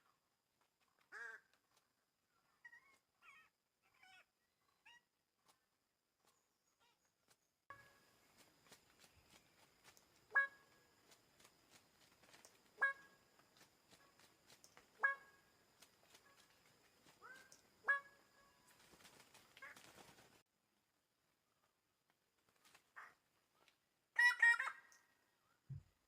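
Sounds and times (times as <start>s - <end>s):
bird honking calls: 10.3s - 10.8s.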